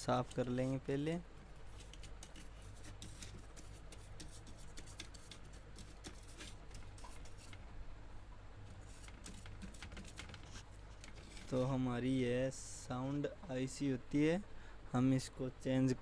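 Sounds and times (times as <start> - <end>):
steady low hum: 0.0 - 16.0
brush scrubbing circuit board: 1.7 - 7.6, 8.8 - 10.6.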